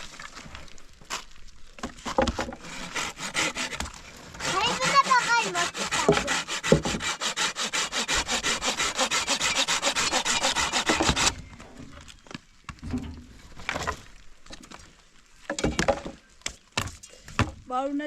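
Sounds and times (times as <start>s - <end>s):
rapid rasping strokes: 2.6s - 11.4s
scattered knocks: 5.9s - 7.1s.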